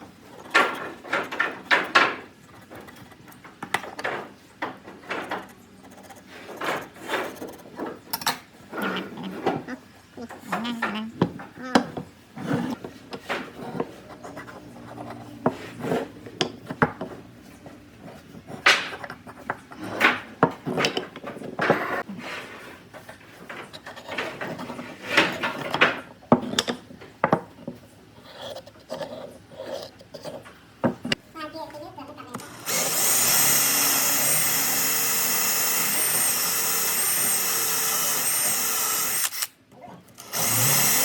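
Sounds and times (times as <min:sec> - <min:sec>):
wood and hand tools clattering: 0:15.0 - 0:27.9.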